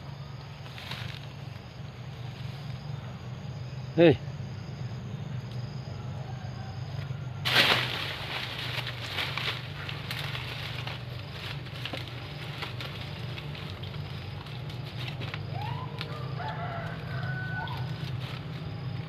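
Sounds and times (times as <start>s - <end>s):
steady low hum: 0.0s - 19.0s
rooster crowing: 5.8s - 7.4s, 15.4s - 18.8s.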